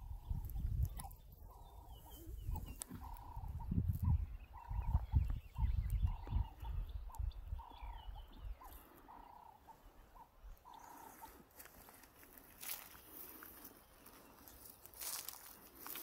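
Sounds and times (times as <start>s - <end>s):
wind buffeting microphone: 0.0s - 9.4s
bird calling: 0.0s - 16.0s
faint chirps of other birds: 0.0s - 16.0s.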